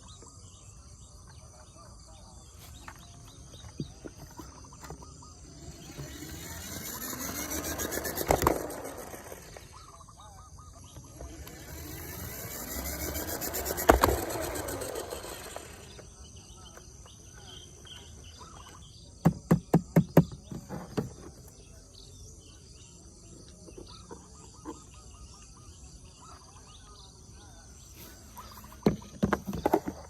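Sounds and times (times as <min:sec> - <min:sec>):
faint chirping calls: 0:00.0 - 0:30.0
sharp knocks: 0:19.2 - 0:20.6.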